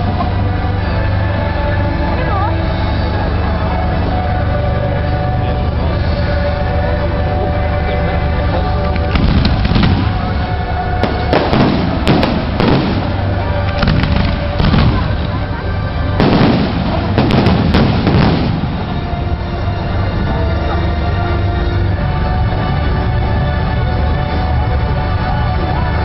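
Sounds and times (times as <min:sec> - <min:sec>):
fireworks bangs and crackles: 0:00.0 - 0:01.6, 0:08.8 - 0:20.2
background music: 0:00.0 - 0:26.0.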